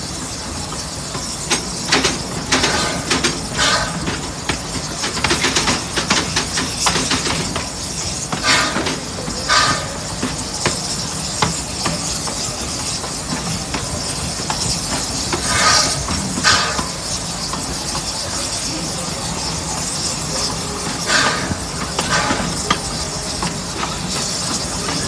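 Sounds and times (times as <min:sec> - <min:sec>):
train rumble: 0:00.0 - 0:25.0
wheels clicking over rail joints: 0:00.0 - 0:25.0
short bursts of hiss: 0:08.4 - 0:10.2.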